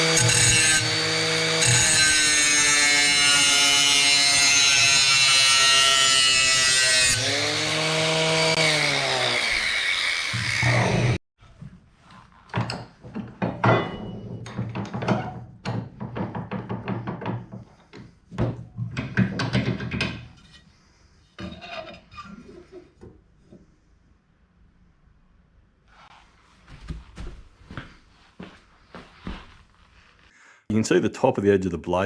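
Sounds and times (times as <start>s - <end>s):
metal tools knocking and clanking: 12.6s - 17.4s.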